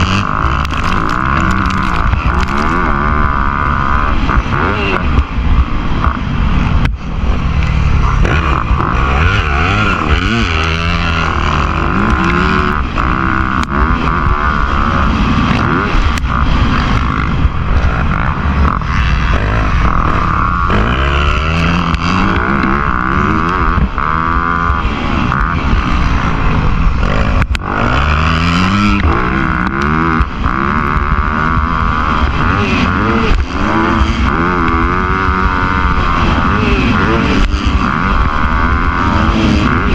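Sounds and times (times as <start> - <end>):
low rumble: 0.0 - 39.8
dirt bike engines revving: 0.0 - 39.9.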